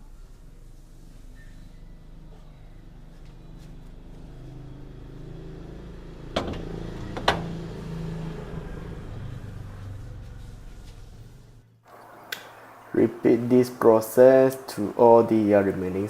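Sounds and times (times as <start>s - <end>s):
vehicle engine running: 0.0s - 11.9s.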